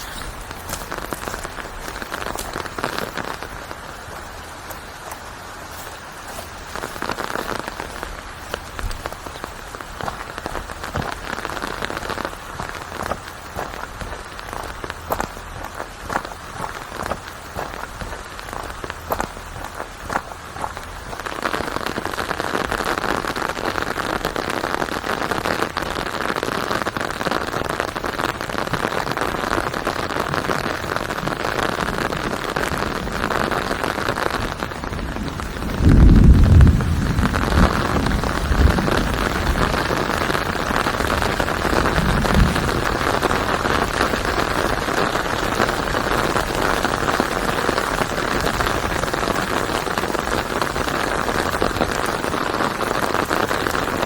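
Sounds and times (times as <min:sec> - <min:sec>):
steady rain falling: 0:00.0 - 0:54.0
low rumble: 0:34.9 - 0:39.8.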